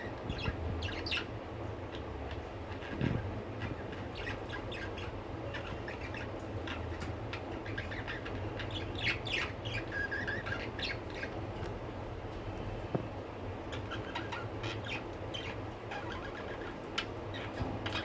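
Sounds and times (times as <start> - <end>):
budgerigars chirping: 0.3 - 1.3, 3.6 - 11.4, 13.7 - 18.0.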